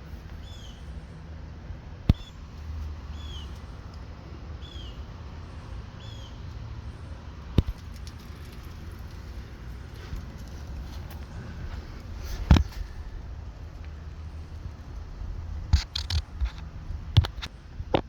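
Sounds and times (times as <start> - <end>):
low steady rumble: 0.0 - 18.0
bird chirping: 0.4 - 1.2, 3.1 - 3.9, 4.6 - 8.2.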